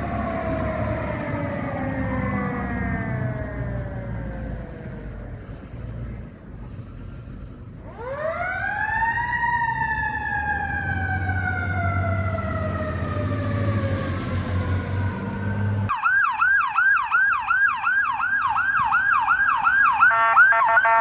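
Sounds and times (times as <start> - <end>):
fire truck siren wailing: 0.0 - 6.4, 7.7 - 21.0
low engine rumble: 0.0 - 15.9.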